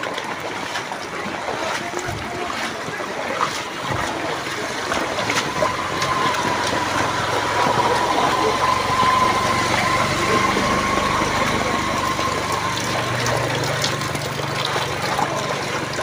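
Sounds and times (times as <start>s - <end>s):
water rushing: 0.0s - 16.0s
thin high tone: 5.5s - 14.0s.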